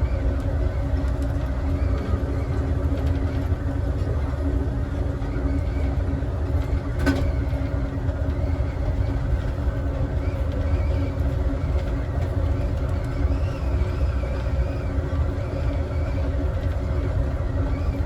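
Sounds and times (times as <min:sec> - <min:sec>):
constant hum: 0:00.0 - 0:18.0
train wheels rumbling on rails: 0:00.0 - 0:18.0.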